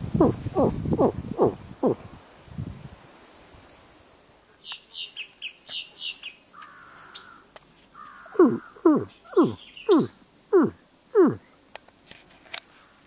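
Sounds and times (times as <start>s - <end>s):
birds chirping: 0.0s - 2.0s, 4.6s - 11.7s
buzzy bird call: 0.1s - 2.0s, 8.0s - 11.4s.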